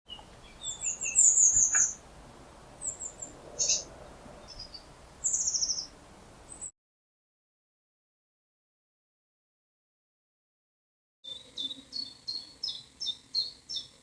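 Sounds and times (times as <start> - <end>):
short high bird chirps: 0.1 - 2.0, 2.8 - 3.9, 4.5 - 5.9
rapid falling bird trills: 0.1 - 6.7.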